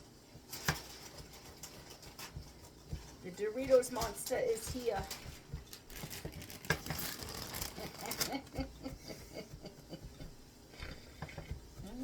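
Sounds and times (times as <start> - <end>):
chip bag crinkling: 4.2 - 8.6.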